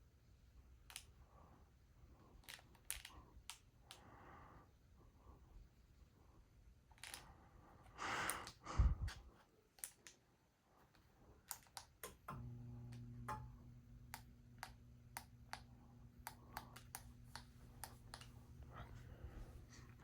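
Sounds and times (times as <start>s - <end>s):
ceiling fan motor humming: 12.0s - 20.0s.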